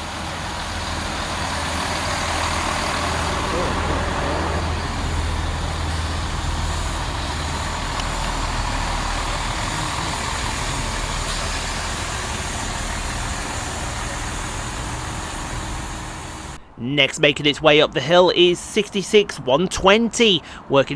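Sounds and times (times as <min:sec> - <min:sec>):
low hum: 0:00.0 - 0:16.6
diesel train rumbling: 0:00.0 - 0:20.9.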